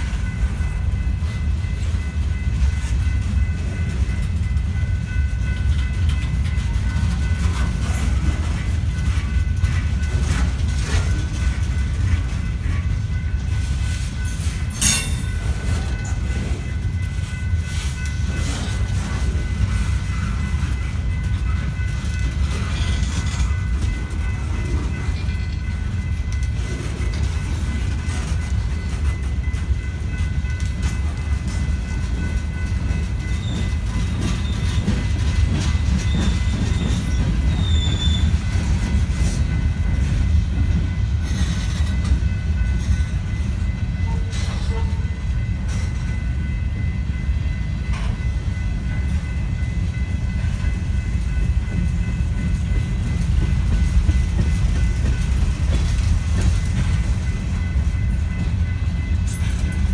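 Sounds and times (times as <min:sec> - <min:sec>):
steel wheels rumbling on rail: 0:00.0 - 0:59.9
wheel squeal: 0:36.0 - 0:38.3.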